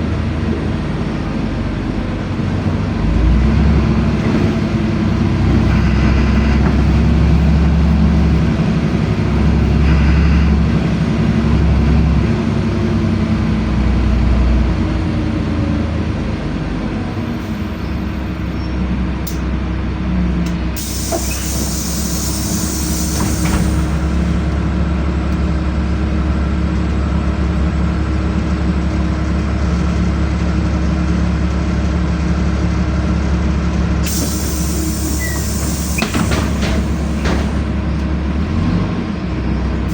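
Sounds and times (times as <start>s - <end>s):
bus engine drone: 0.0s - 39.9s
compressed air hiss: 20.8s - 24.4s, 34.0s - 37.6s.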